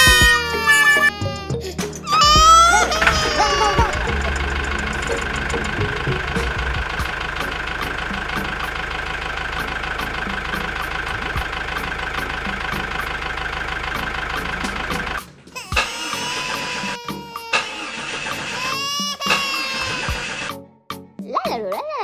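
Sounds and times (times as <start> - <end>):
regular ticking: 2.0 - 15.2
small motor running: 2.1 - 9.4.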